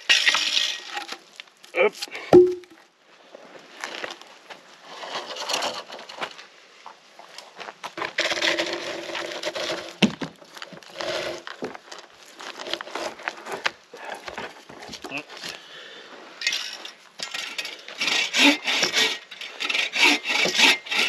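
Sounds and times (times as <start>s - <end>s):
dry wood crackling and snapping: 7.3s - 15.6s.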